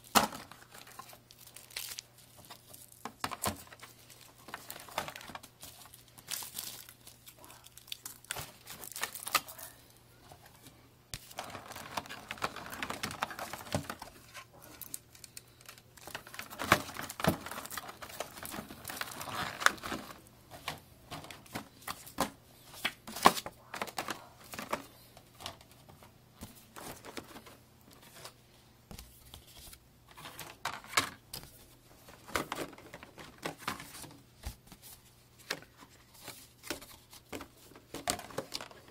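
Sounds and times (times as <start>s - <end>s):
plastic packaging crinkling: 0.0s - 9.8s, 11.2s - 28.4s.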